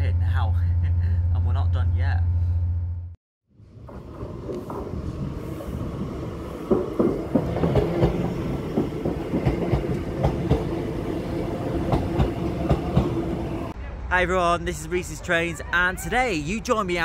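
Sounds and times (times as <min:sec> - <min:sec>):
train rumbling along track: 0:03.6 - 0:13.8
wheels clicking over rail joints: 0:06.6 - 0:10.8.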